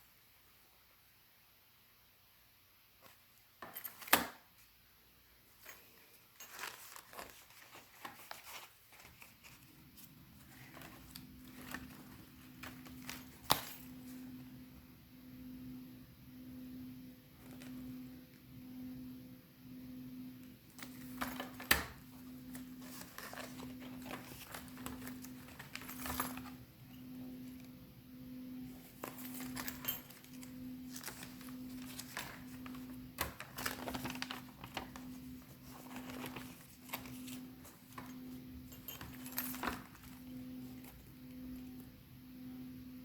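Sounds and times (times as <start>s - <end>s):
metal embellishments jingling: 5.6s - 9.5s, 10.4s - 14.4s, 20.8s - 27.6s, 28.6s - 41.0s
paper pages rustling: 5.8s - 13.5s, 22.4s - 26.5s, 28.8s - 38.1s.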